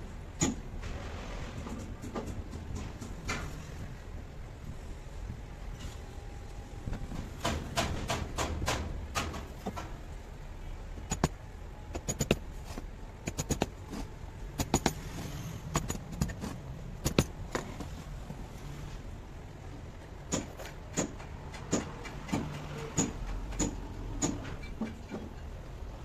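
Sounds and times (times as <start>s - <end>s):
tools and metal parts clicking: 11.0s - 18.0s, 20.3s - 25.6s.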